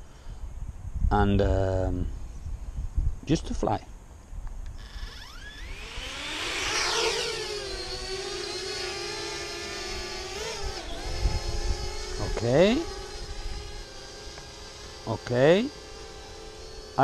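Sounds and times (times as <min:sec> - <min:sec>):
quadcopter propellers whirring: 0:04.7 - 0:17.0.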